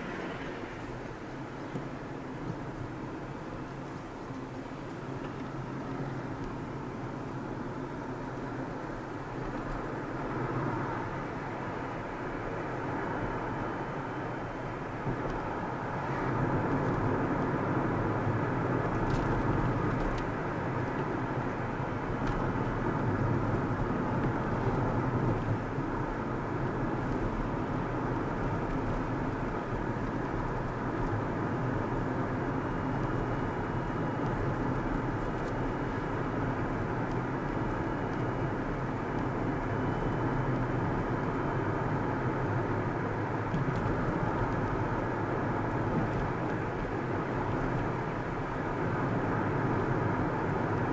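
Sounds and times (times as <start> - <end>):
car tyre and engine hum: 0.0 - 50.9.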